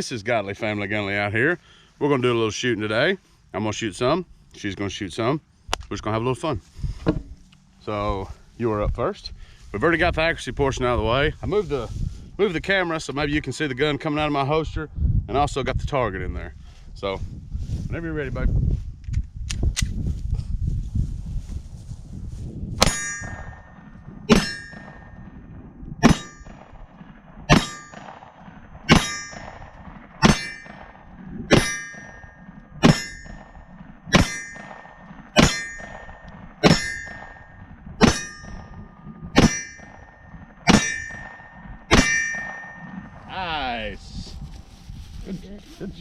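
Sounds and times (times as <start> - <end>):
steel target ringing: 22.8 - 25.4, 26.0 - 26.7, 27.5 - 43.8
pistol shots: 26.0 - 43.3.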